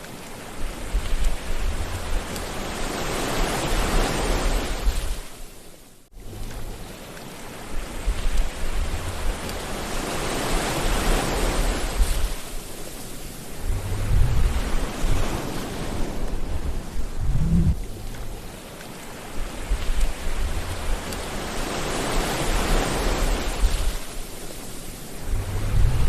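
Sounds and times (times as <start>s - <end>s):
sea waves breaking: 0.0s - 26.0s
low rumble: 13.5s - 18.5s, 25.2s - 26.0s.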